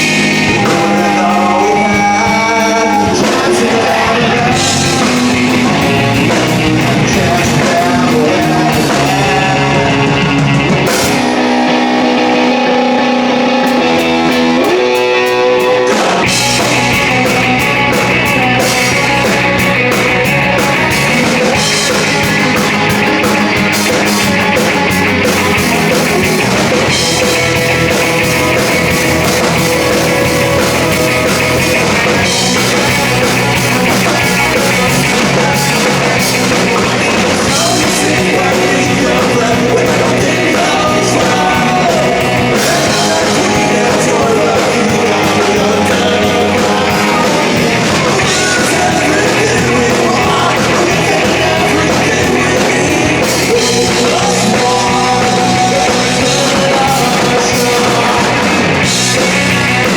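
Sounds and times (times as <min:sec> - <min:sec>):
bass: 0:00.0 - 0:59.9
drums: 0:00.0 - 0:59.9
electric guitars: 0:00.0 - 0:59.9
person singing: 0:00.0 - 0:59.9.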